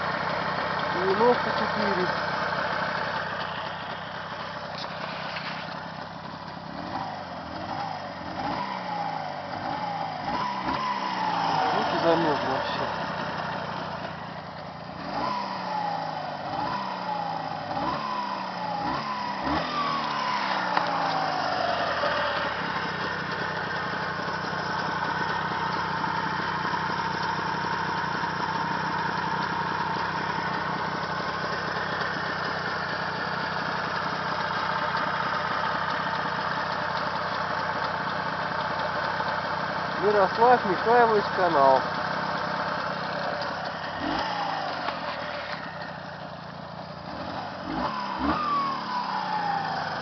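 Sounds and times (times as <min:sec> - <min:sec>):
engine idling: 0:00.0 - 0:50.0
engine revving: 0:00.9 - 0:02.5, 0:06.6 - 0:14.3, 0:14.9 - 0:36.1, 0:40.0 - 0:46.1, 0:46.9 - 0:50.0.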